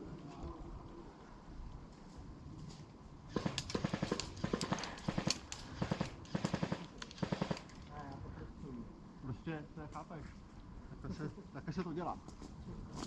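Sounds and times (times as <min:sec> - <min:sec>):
airsoft gun firing bursts: 0:03.3 - 0:07.8.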